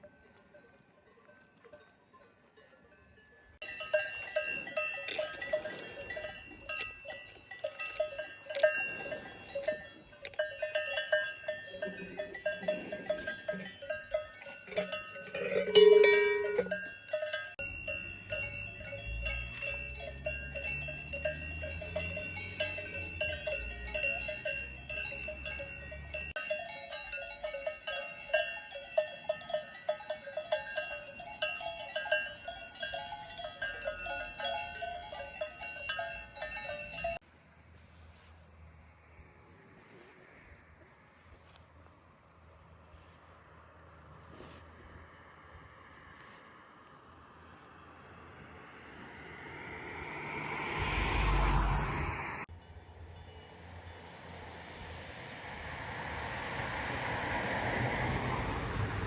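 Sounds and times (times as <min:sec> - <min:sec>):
cowbells clanking: 0:00.0 - 0:37.2, 0:52.5 - 0:54.9
low rumble: 0:49.0 - 0:52.5.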